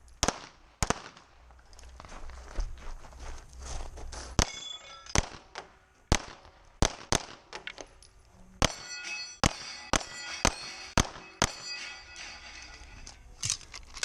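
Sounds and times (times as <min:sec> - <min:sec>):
pistol shots: 0:00.2 - 0:01.3, 0:04.4 - 0:07.6, 0:08.6 - 0:11.9
steel plate targets clanging: 0:04.4 - 0:05.3, 0:07.7 - 0:13.4.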